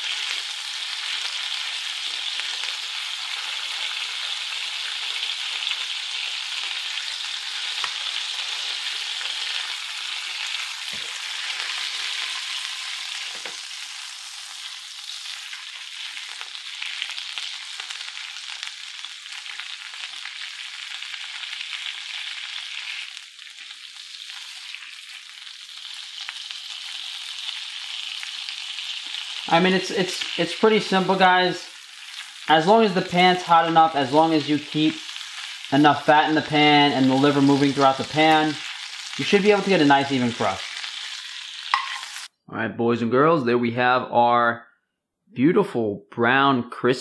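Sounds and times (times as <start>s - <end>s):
liver sizzling in a pan: 0.0s - 42.3s
spoon knocking against pan: 41.7s - 42.0s.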